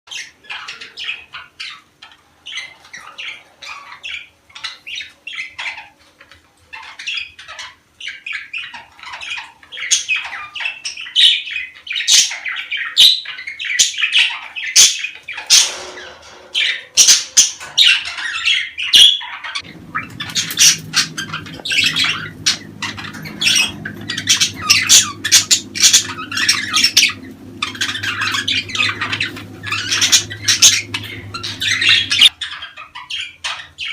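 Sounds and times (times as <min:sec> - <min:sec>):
budgerigars chirping and squawking: 0:00.1 - 0:33.9
low steady hum: 0:19.5 - 0:32.4.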